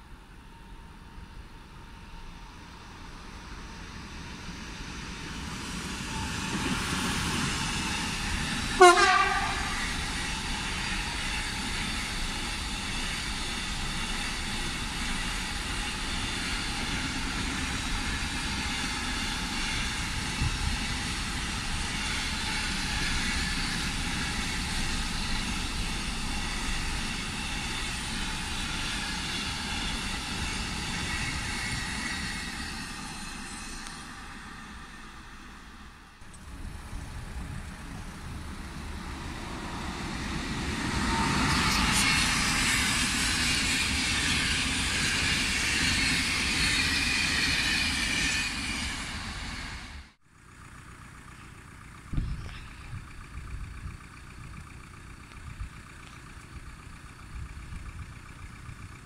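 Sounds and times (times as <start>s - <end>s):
locomotive horn blast: 8.8s - 10.0s.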